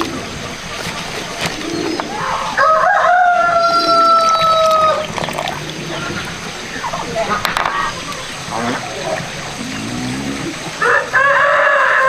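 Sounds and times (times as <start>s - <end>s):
rooster crowing: 2.1s - 5.1s, 10.8s - 12.0s.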